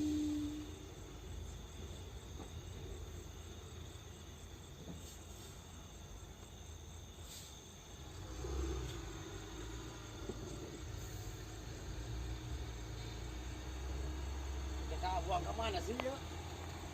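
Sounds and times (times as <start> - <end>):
insects chirring: 0.0 - 16.9.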